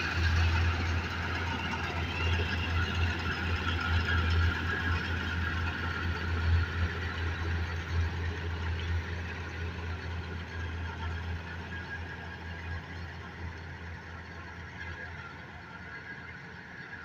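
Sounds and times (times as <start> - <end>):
combine harvester engine drone: 0.0 - 17.0.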